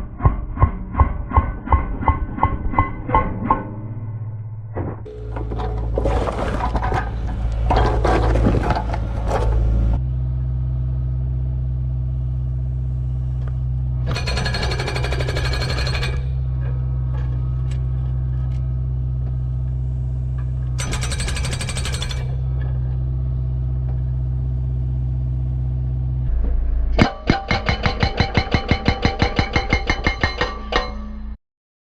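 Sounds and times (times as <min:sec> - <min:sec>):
excavator diesel engine running: 0:05.1 - 0:26.2
hydraulic breaker hammering concrete: 0:14.1 - 0:16.4, 0:20.8 - 0:22.4, 0:27.0 - 0:31.0.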